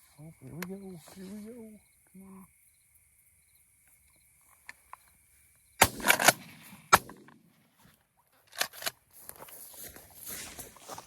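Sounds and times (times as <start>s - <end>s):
shotgun blasts: 5.8s - 7.5s.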